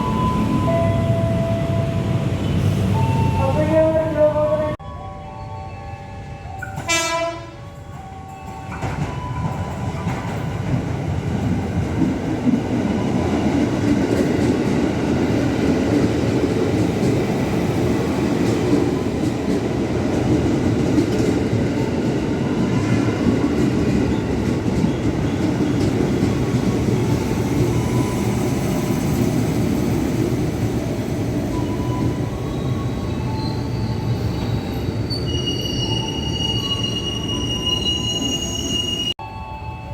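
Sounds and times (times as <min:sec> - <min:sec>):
train horn blast: 0:06.9 - 0:07.6
train wheels rumbling on rails: 0:07.8 - 0:38.9.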